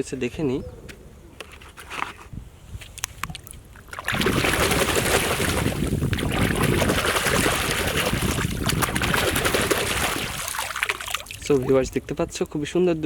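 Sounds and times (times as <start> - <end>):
water running and splashing: 3.9 - 11.8.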